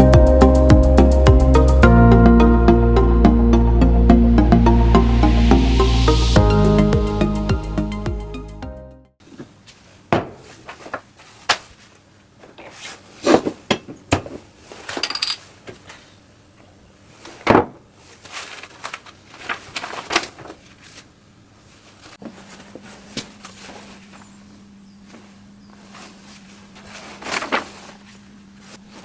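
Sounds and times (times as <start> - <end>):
metal tools clinking and knocking: 14.8 - 15.5.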